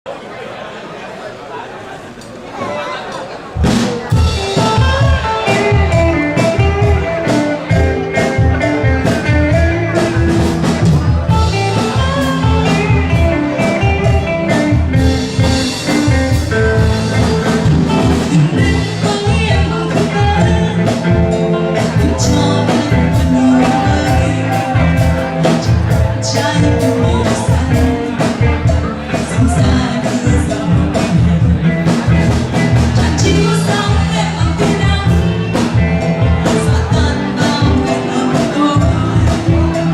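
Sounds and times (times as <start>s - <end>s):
band playing pop song: 3.5s - 39.9s
steady drum beat: 3.6s - 39.9s.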